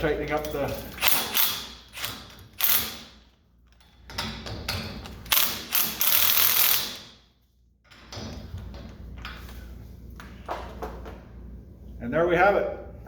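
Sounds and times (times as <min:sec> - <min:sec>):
ratcheting clicks: 0:05.0 - 0:07.1.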